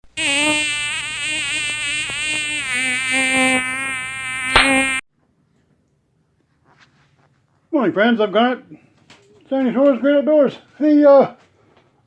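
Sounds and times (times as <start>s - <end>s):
loud insect-like buzz: 0.1s - 5.0s
sharp click: 4.5s - 5.0s.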